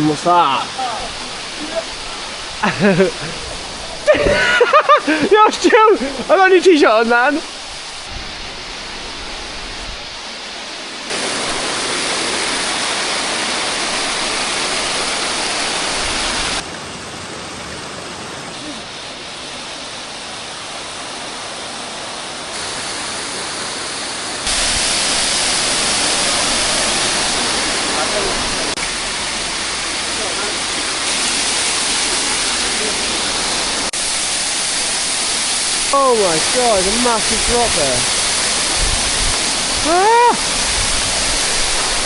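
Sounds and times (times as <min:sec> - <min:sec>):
waterfall rushing: 0:00.0 - 0:42.0
churning water: 0:08.8 - 0:42.0.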